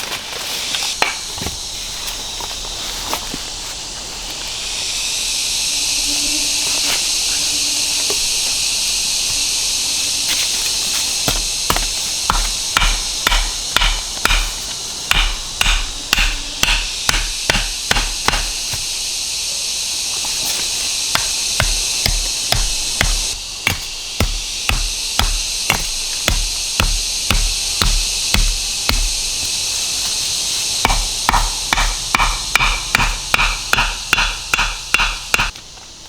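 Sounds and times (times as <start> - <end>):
steady high hiss: 0.0 - 36.0
wood being struck hard: 11.0 - 19.1, 21.1 - 29.6, 30.7 - 35.6.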